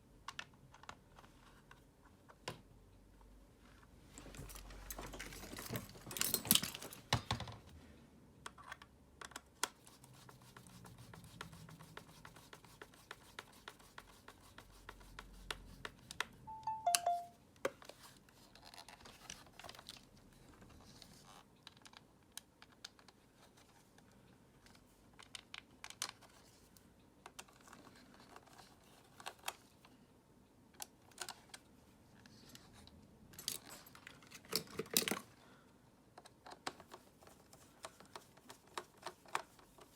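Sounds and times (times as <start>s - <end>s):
two-note falling tone: 16.5s - 17.3s.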